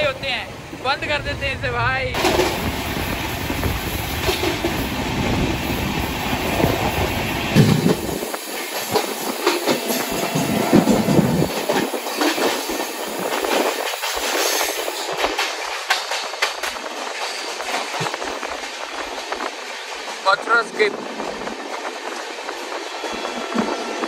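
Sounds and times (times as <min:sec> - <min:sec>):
train wheels rushing on rails: 0:00.0 - 0:24.0
fast clickety-clack clatter: 0:10.4 - 0:19.2.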